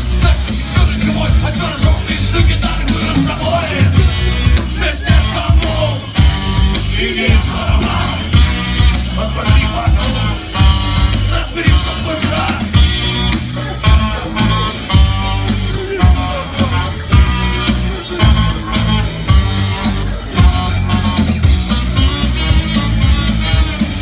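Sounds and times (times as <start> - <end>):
live punk rock band: 0.0 - 24.0
singer shouting vocals: 1.4 - 6.1.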